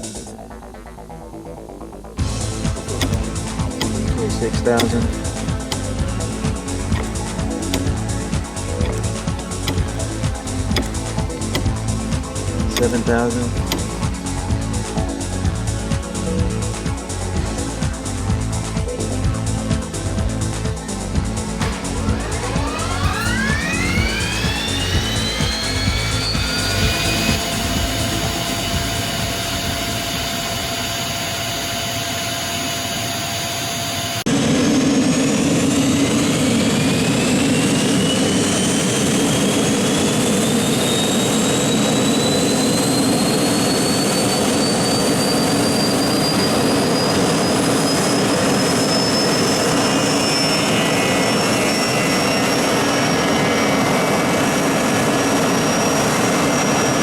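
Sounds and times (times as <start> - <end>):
turbofan engine spooling up: 0.0 - 57.0.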